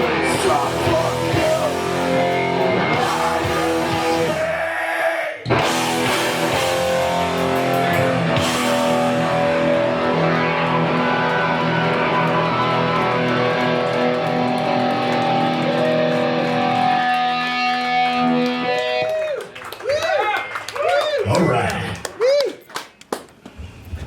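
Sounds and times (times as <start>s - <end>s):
electric guitars ringing chords: 0.0s - 4.4s, 5.5s - 19.1s.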